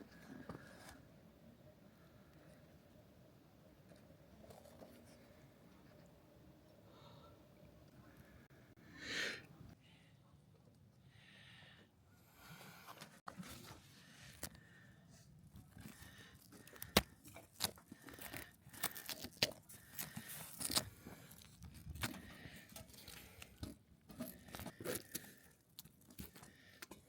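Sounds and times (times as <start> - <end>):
camping gear handled in snow: 15.5 - 27.0.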